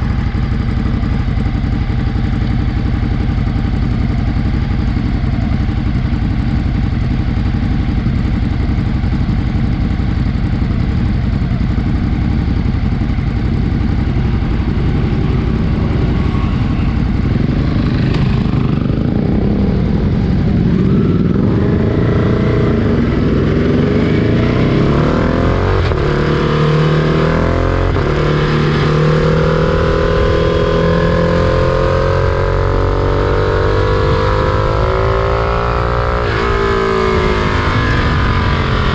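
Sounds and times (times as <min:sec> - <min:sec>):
engine tone rising in pitch: 0:14.1 - 0:38.9.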